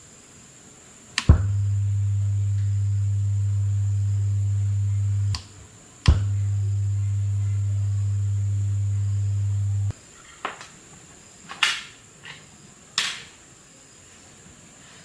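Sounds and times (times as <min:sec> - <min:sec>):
loudspeaker humming: 0:01.3 - 0:05.4, 0:06.1 - 0:09.9.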